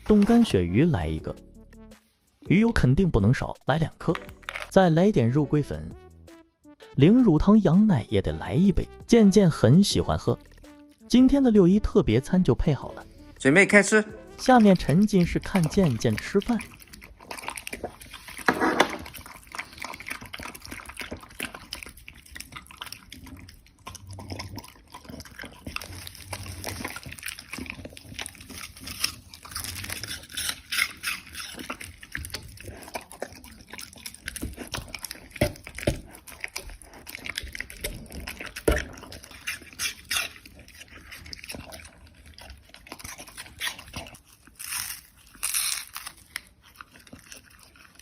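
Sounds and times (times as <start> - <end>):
dog chewing and licking food: 0.0 - 1.4, 14.2 - 48.0.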